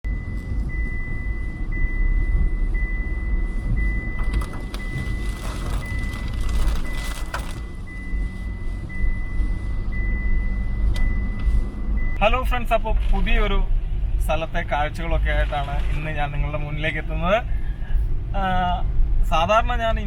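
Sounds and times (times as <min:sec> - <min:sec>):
motor vehicle rumble: 0:00.0 - 0:19.5
high electronic beep: 0:00.1 - 0:11.4.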